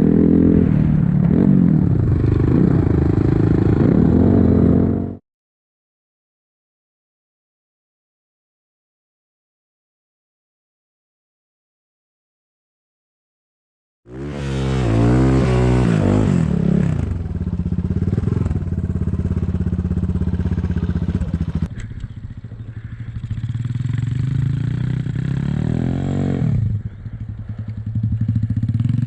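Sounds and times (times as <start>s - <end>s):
motorcycle engine revving: 0.0s - 5.2s, 14.1s - 29.0s.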